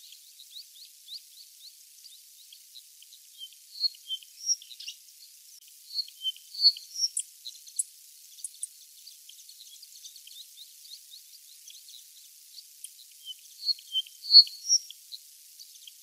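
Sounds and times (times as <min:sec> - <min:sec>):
high bird calls: 0:12.8 - 0:15.0.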